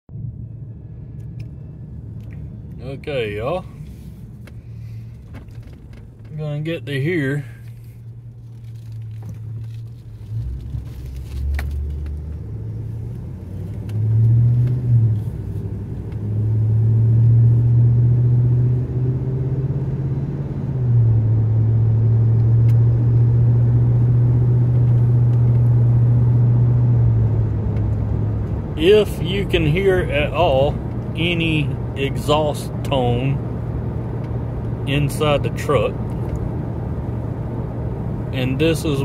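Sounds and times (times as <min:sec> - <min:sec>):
truck engine drone from cab: 0:00.1 - 0:39.0.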